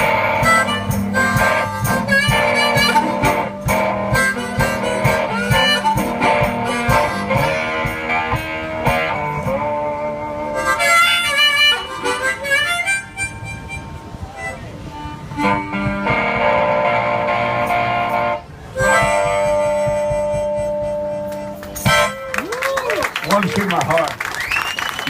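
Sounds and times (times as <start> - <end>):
steady drum beat: 0.0 - 10.6, 18.8 - 22.1
harmonica melody: 0.0 - 22.4
guitar: 0.0 - 23.2.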